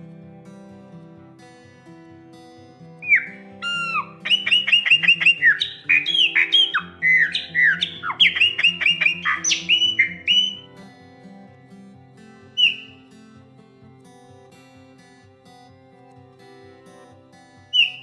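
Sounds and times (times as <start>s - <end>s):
soft guitar music: 0.0s - 18.0s
blackbird whistling song: 3.0s - 10.6s, 12.6s - 12.9s, 17.8s - 18.0s.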